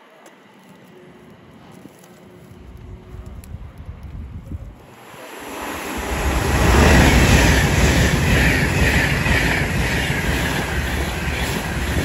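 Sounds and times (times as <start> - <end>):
wheel-on-rail whine: 0.0 - 12.0
train rumbling past: 4.8 - 12.0.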